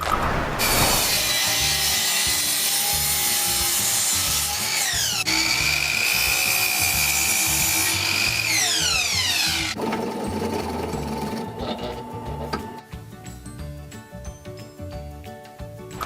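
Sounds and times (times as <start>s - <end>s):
power saw cutting wood: 0.6s - 12.6s.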